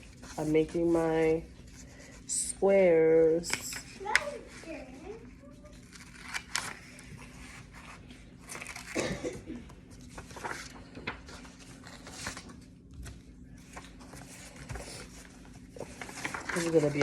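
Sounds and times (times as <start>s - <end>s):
paper rustling: 3.1s - 9.0s, 9.7s - 17.0s.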